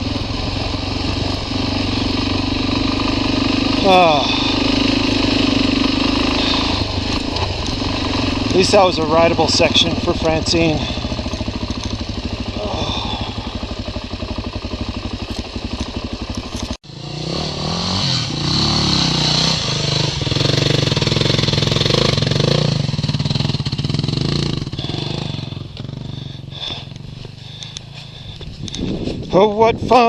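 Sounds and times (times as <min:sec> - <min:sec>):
motorcycle engine running: 0:00.0 - 0:30.0
wind noise: 0:28.2 - 0:30.0.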